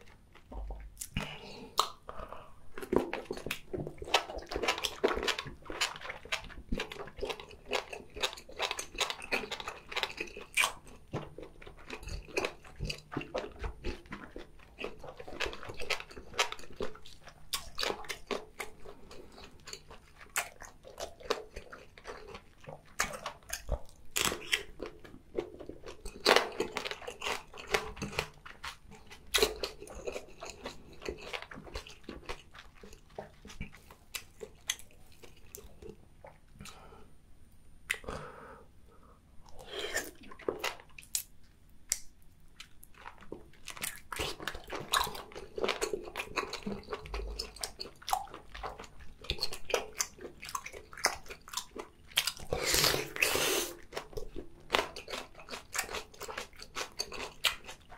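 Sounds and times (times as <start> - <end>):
chewing noises: 0.0 - 36.8, 39.4 - 57.9.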